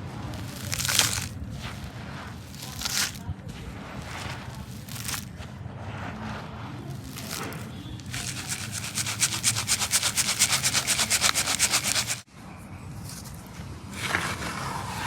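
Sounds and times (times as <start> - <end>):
sieve shaking cement: 0.0 - 12.3
gritty hiss: 6.9 - 12.3.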